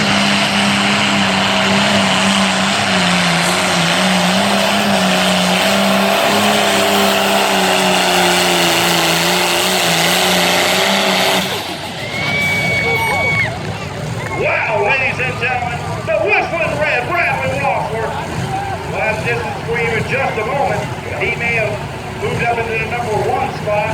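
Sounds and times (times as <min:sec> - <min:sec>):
tractor engine running hard: 0:00.0 - 0:23.9.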